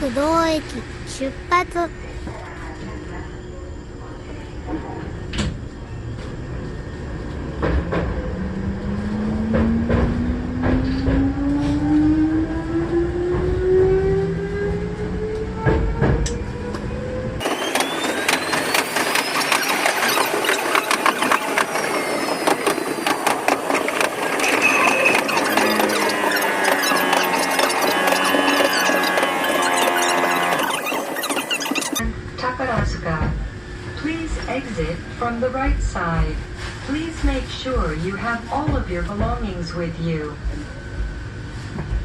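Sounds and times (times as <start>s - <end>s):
rattling wheel-on-rail noise: 4.7s - 42.0s
electric train motor whine rising: 6.2s - 32.0s
wheels clicking on rail joints: 17.4s - 32.0s.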